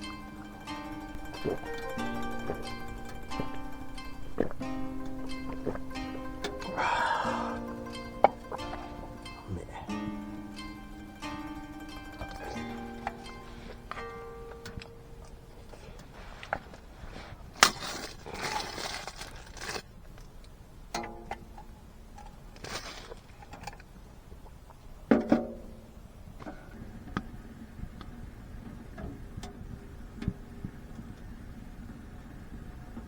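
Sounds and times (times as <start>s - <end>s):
scraping rustle: 11.8s - 20.4s, 22.2s - 23.9s.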